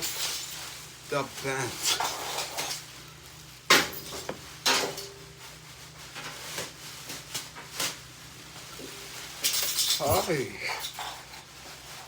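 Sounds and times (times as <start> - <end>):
plastic rain pants rustling: 5.4 - 12.0.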